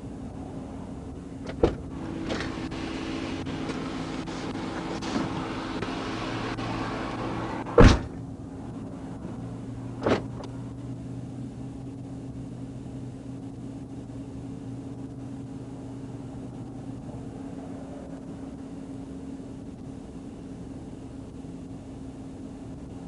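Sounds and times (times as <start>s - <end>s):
low vehicle cabin hum: 0.0s - 23.0s
loud thump: 1.5s - 1.9s, 7.8s - 8.2s.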